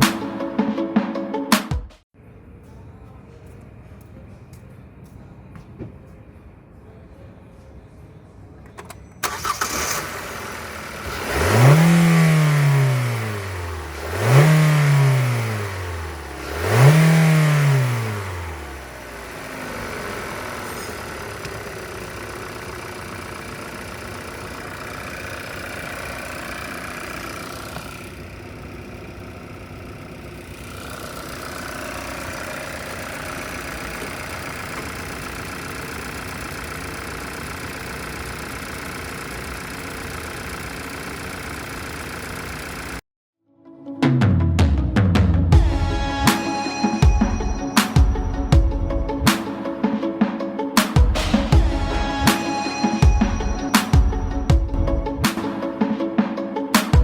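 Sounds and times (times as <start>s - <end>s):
car engine starting and revving: 8.8s - 43.0s.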